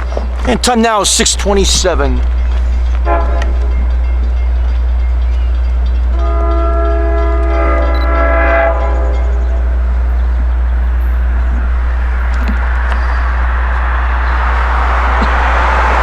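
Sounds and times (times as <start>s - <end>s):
train rumble: 0.0s - 16.0s
locomotive air horn blast: 3.0s - 3.7s, 6.1s - 9.9s.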